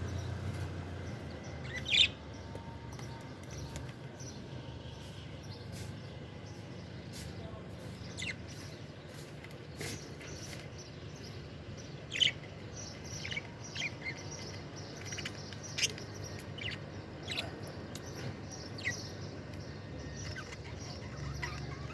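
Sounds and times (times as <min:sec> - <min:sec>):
budgerigars chirping: 0:01.6 - 0:02.2, 0:07.9 - 0:21.9.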